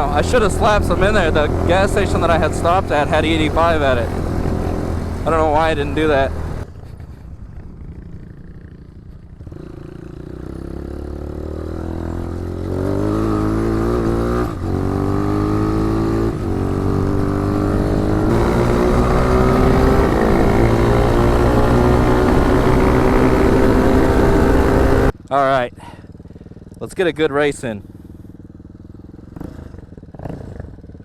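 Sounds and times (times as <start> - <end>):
dirt bike engine accelerating: 0.0 - 31.0.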